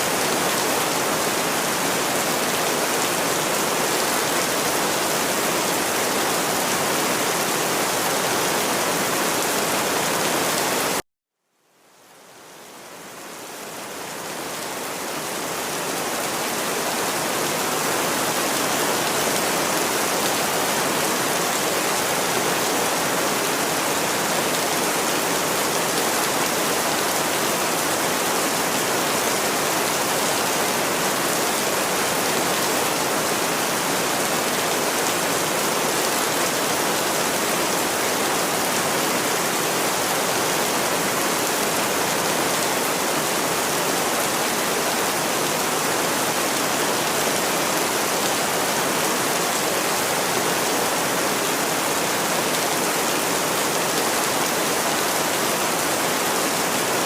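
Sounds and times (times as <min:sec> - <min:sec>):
dense rainfall hiss: 0:11.6 - 0:57.0.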